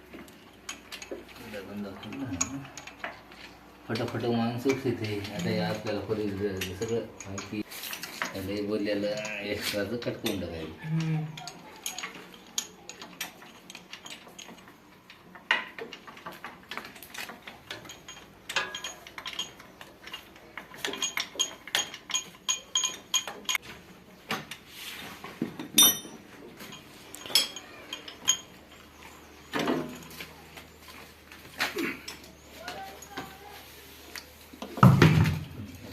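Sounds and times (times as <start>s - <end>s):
metal tools clinking on steel: 0.1s - 24.7s, 25.4s - 35.3s
ringing metal clank: 25.8s - 26.2s.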